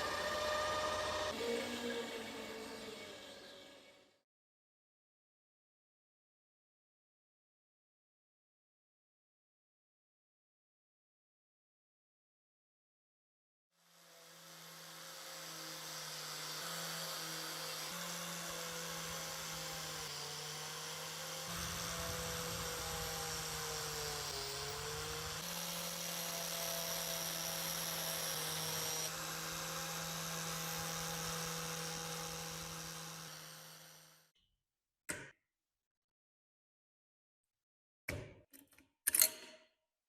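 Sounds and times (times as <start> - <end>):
electric power tool whining: 0.0 - 4.2, 13.9 - 34.3.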